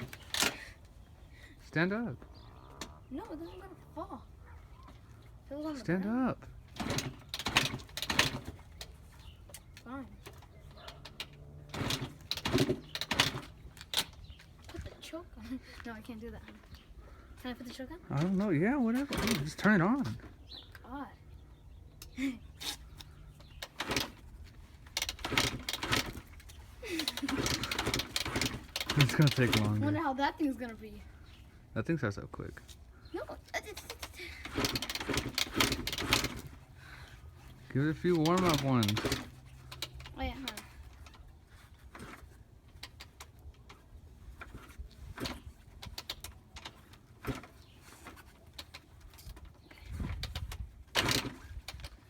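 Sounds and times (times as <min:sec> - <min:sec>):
dirt bike kick-starter clattering: 0:00.0 - 0:00.8, 0:06.6 - 0:15.2, 0:17.5 - 0:20.7, 0:22.7 - 0:30.2, 0:33.1 - 0:52.0.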